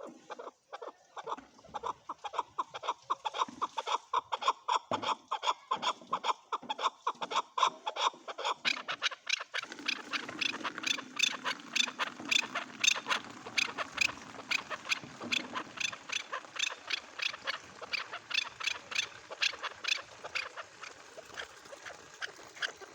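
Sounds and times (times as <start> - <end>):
partridge calling: 8.7 - 21.3.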